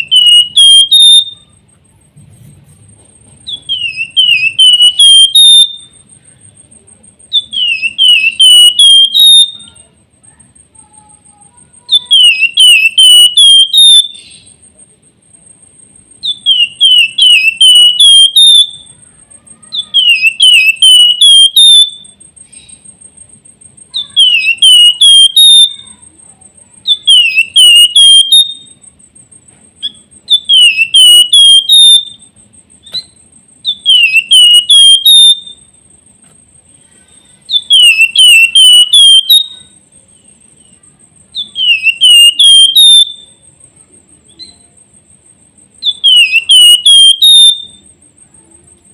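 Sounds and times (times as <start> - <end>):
songbird whistling: 0.0 - 1.6, 3.4 - 6.3, 7.3 - 9.9, 11.9 - 14.6, 16.2 - 19.0, 19.6 - 23.0, 23.9 - 25.9, 26.8 - 28.8, 29.8 - 35.8, 37.0 - 43.4, 45.8 - 47.9
faint high-pitched whine: 0.0 - 48.9.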